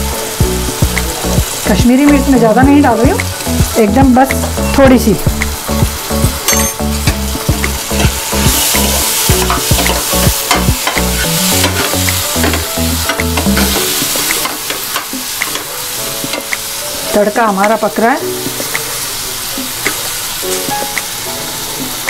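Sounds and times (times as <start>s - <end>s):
spices sizzling in a pan: 0.0s - 22.0s
spoon scraping a metal pan: 8.0s - 12.6s.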